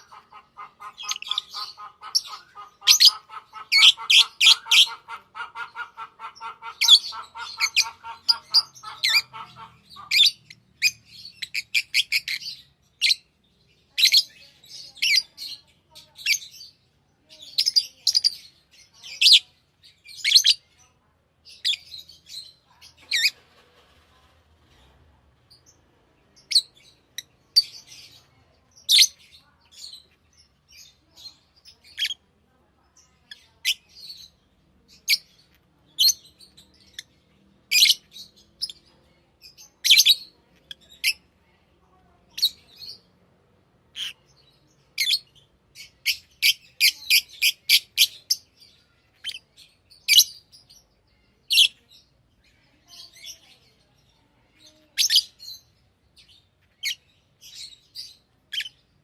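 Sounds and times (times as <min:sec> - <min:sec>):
lovebirds chirping: 0:00.0 - 0:24.2, 0:25.4 - 0:43.2, 0:43.9 - 0:59.0.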